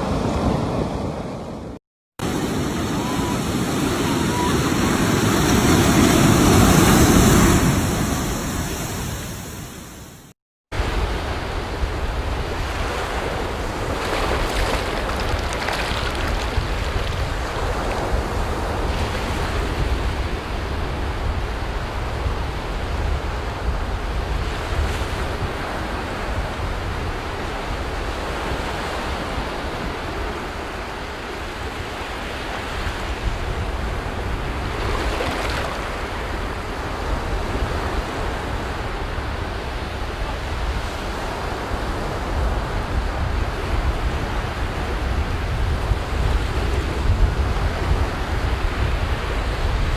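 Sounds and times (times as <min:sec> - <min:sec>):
wind buffeting microphone: 0:10.8 - 0:30.5, 0:32.7 - 0:49.9
sea waves breaking on beach: 0:10.8 - 0:49.9.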